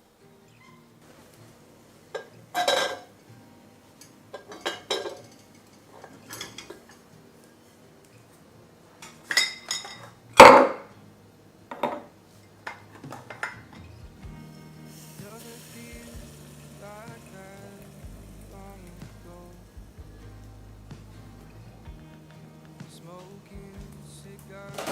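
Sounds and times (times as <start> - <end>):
dishes and cutlery clinking: 2.1 - 3.1, 4.0 - 7.1, 9.0 - 10.9, 11.7 - 16.0.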